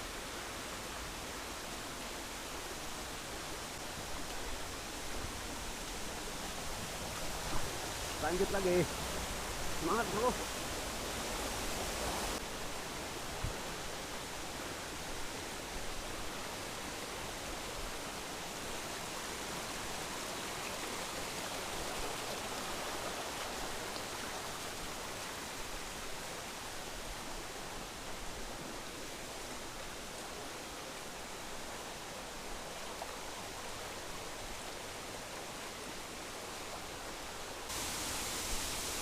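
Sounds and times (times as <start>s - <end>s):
river flowing over rocks: 0.0s - 39.0s.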